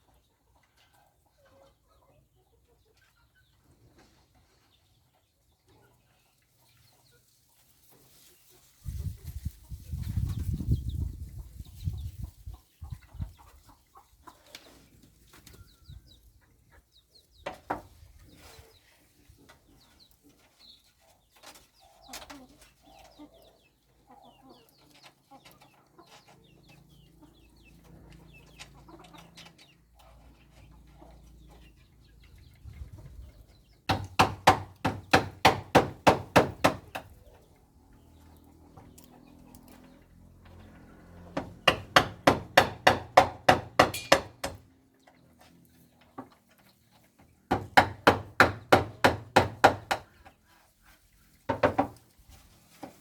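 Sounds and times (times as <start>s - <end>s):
chickens clucking: 0.0s - 53.0s
sharp knocks: 41.4s - 44.6s.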